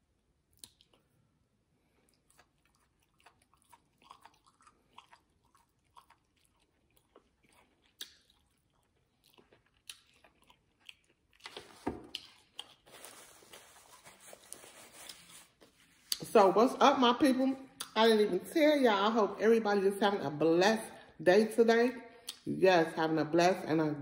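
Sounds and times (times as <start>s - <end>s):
chewing food: 0.5s - 1.2s, 1.8s - 16.3s
paper napkin rustling: 12.8s - 16.1s.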